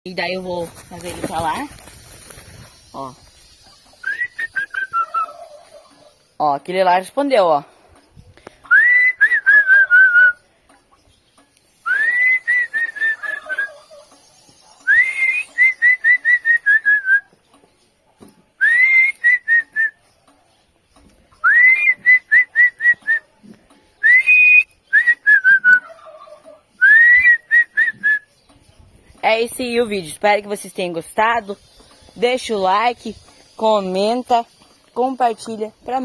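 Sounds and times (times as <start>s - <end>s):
bird whistled calls: 2.8s - 5.6s, 8.7s - 10.5s, 11.8s - 14.1s, 14.8s - 17.3s, 18.6s - 20.0s, 21.4s - 23.3s, 24.0s - 26.1s, 26.8s - 28.4s.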